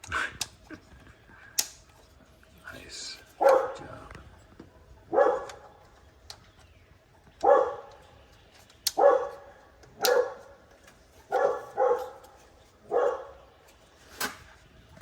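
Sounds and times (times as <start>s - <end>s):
sharp clicks: 1.4s - 2.0s, 9.6s - 11.0s
dog barking: 3.3s - 4.0s, 5.0s - 5.8s, 7.4s - 8.1s, 8.9s - 13.5s.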